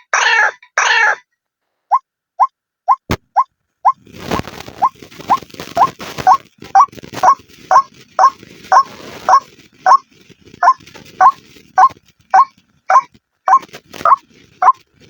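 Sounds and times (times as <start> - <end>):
waterhen calling: 4.8 - 10.0, 10.6 - 14.8.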